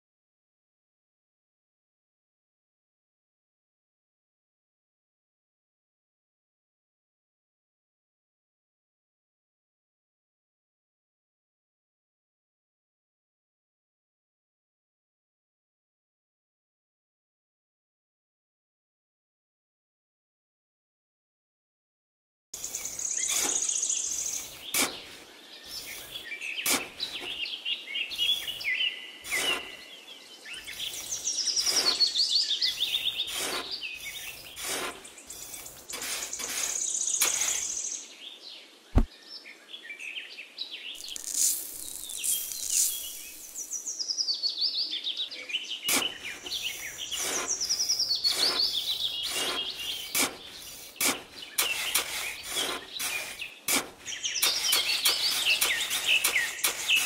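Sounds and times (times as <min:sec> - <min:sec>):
metal shovel scraping sand: 0:22.6 - 0:37.9, 0:41.0 - 0:43.8, 0:45.9 - 0:57.0
birds chirping and singing: 0:22.6 - 0:57.0.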